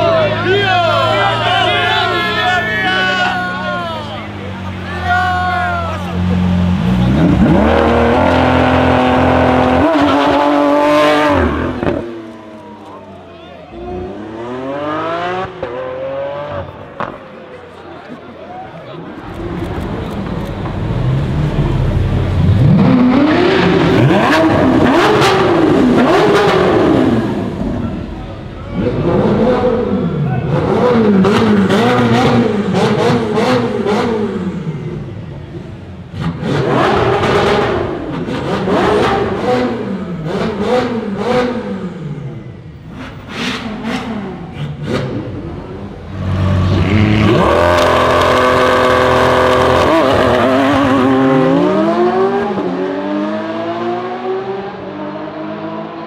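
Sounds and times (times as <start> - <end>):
car engine revving: 6.2 - 12.4, 19.2 - 56.0.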